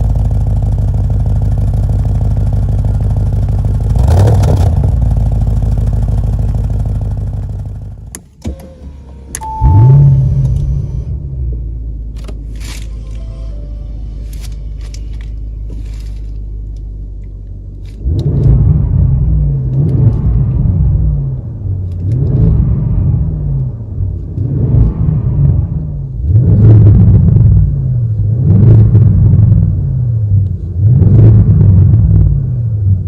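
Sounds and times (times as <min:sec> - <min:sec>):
car engine revving: 0:00.0 - 0:08.1, 0:17.7 - 0:33.0.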